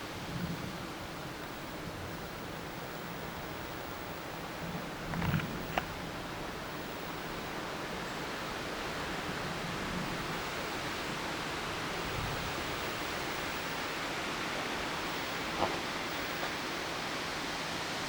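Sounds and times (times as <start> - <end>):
wind rumble on microphone: 0.0 - 7.9, 9.1 - 13.7
wind rushing through trees: 0.0 - 18.0.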